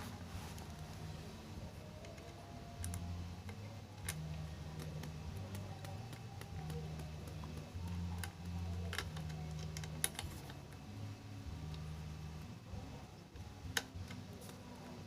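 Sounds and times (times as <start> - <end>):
small metal parts clicking: 2.0 - 10.6.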